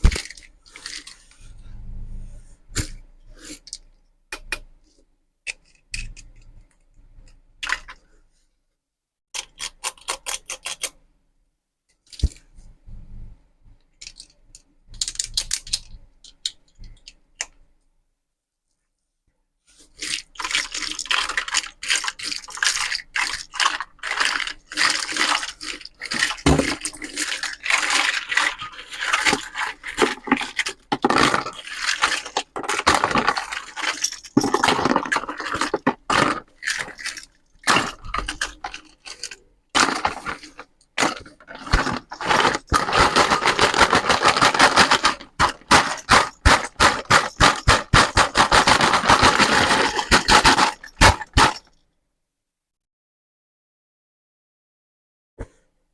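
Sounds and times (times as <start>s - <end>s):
scraping and rustling: 19.7s - 51.6s.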